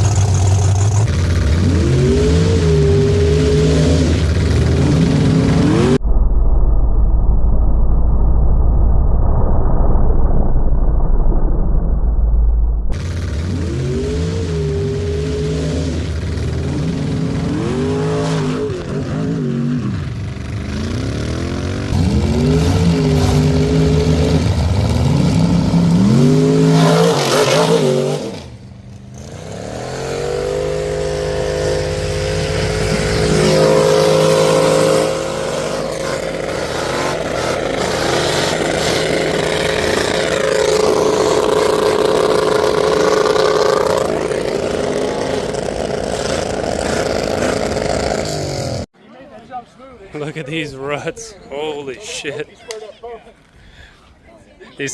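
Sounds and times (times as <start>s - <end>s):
truck engines revving: 0.0s - 6.0s, 12.9s - 48.9s.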